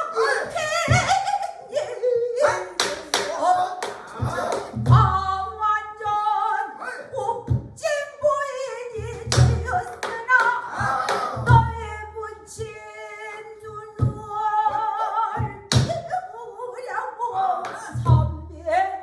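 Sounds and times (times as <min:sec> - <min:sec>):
deep barrel drum beats: 0:00.5 - 0:01.4, 0:02.5 - 0:06.3, 0:07.2 - 0:13.0, 0:13.6 - 0:16.2, 0:17.9 - 0:18.8.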